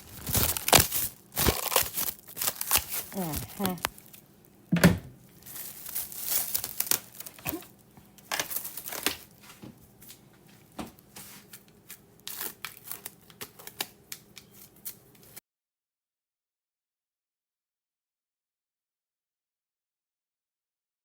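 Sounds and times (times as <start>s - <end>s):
cling wrap crinkling and tearing: 0.0s - 4.2s, 5.2s - 10.2s, 11.0s - 15.4s.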